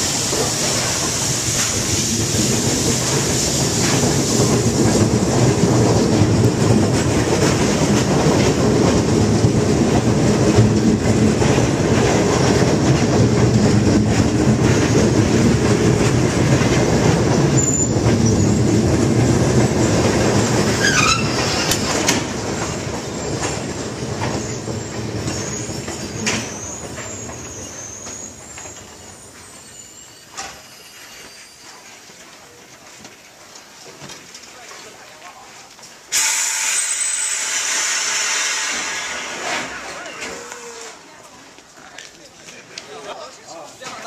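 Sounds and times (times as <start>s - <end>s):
train carriages rumbling on rails: 0.0s - 44.0s
high wheel squeals: 17.6s - 18.7s, 20.7s - 22.1s, 24.3s - 32.0s, 36.2s - 39.2s, 39.8s - 41.0s.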